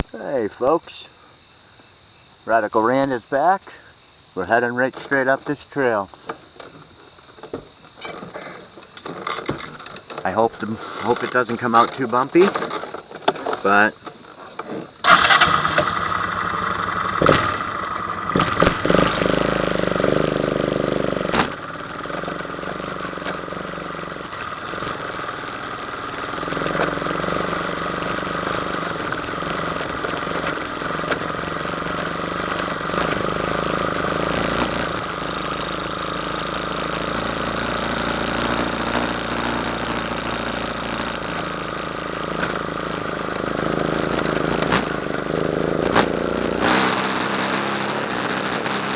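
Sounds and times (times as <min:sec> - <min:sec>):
atv engine revving: 0:09.2 - 0:12.8, 0:14.7 - 0:48.9.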